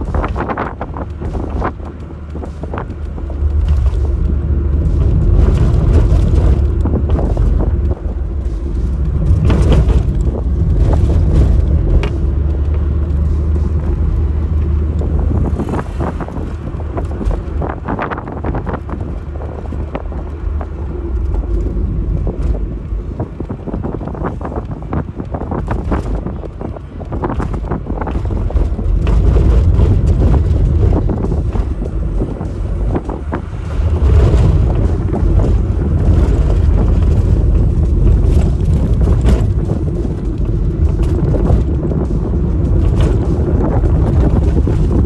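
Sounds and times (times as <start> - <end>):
car engine and road rumble: 0.0 - 45.0.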